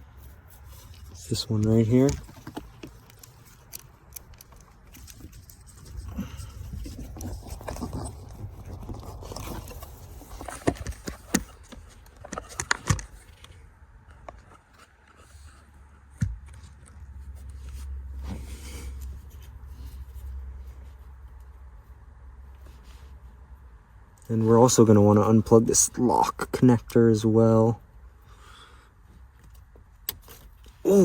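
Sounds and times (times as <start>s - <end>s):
hands scraping and rustling plastic: 0.0s - 13.5s.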